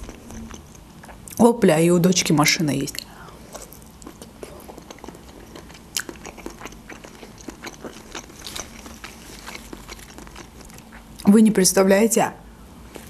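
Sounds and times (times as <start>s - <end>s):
person chewing with mouth clicks: 0.0s - 1.4s, 3.0s - 11.3s.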